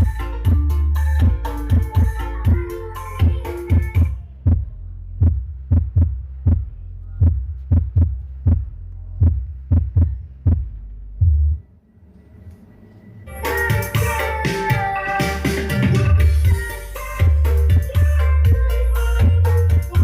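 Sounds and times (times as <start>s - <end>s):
deep bass hum: 0.0s - 11.7s, 15.4s - 20.0s
kick drum thumping: 1.2s - 11.6s.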